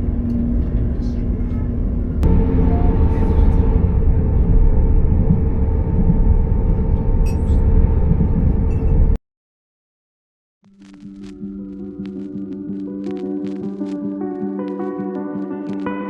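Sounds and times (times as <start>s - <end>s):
constant hum: 0.0s - 9.2s
train rumbling: 0.0s - 9.2s.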